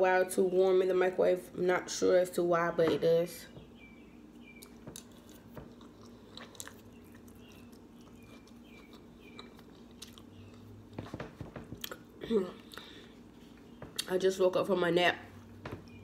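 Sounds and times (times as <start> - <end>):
person chewing food: 4.4 - 14.1.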